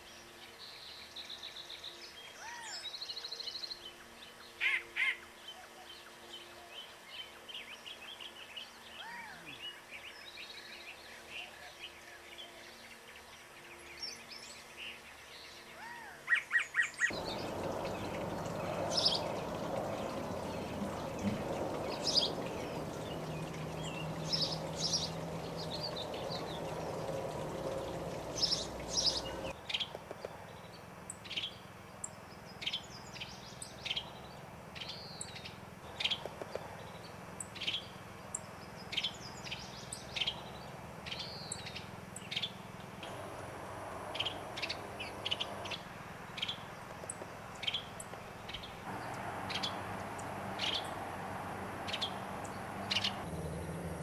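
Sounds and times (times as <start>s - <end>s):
birds chirping: 16.5s - 54.0s
background hiss: 17.1s - 34.8s.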